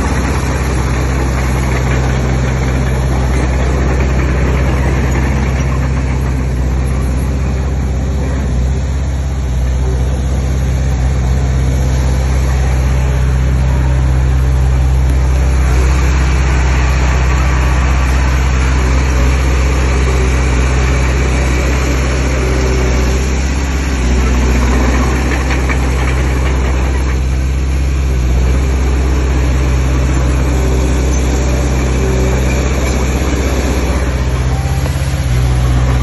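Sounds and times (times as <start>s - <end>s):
diesel engine droning: 0.0s - 36.0s.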